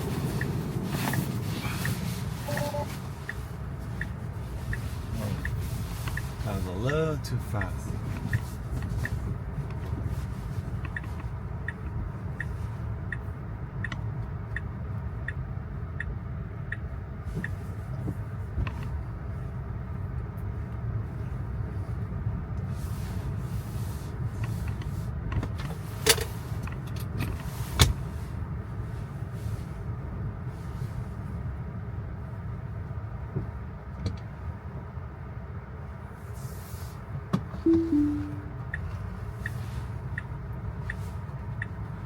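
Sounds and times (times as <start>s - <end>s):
tyre and road noise: 0.0s - 14.4s.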